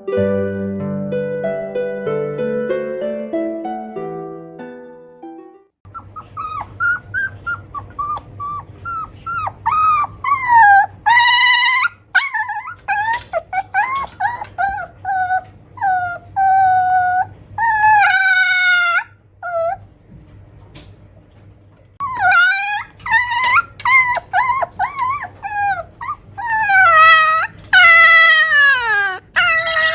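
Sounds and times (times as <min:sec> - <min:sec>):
puppy whining: 0:05.9 - 0:20.0, 0:22.0 - 0:29.9.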